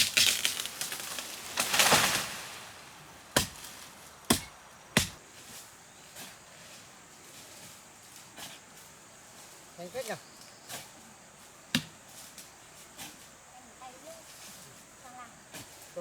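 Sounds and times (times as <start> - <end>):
blade chopping bamboo: 0.0 - 2.2, 3.3 - 5.2.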